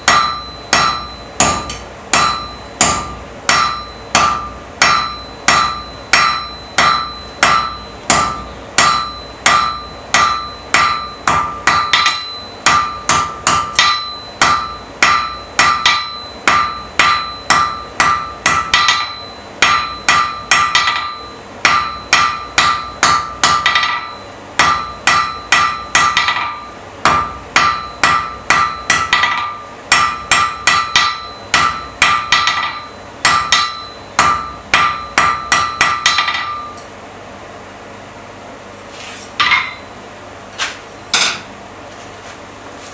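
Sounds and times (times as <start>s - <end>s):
anvil ringing: 0.0s - 36.9s, 39.4s - 40.0s
hammer striking iron on anvil: 0.0s - 36.9s, 39.4s - 40.0s, 41.1s - 41.6s.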